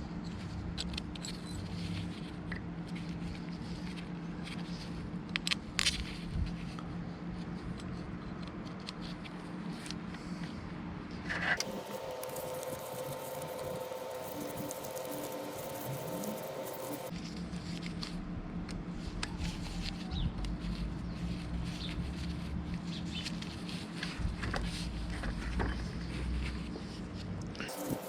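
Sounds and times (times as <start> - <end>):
steady hum: 9.1 - 28.0.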